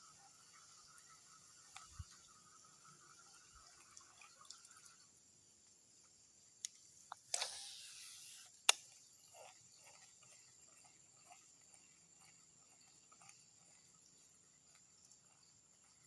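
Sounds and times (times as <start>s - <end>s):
fishing line running off reel: 0.0s - 5.1s, 7.2s - 16.0s
insects chirring: 0.0s - 16.0s
reel click: 6.6s - 9.0s.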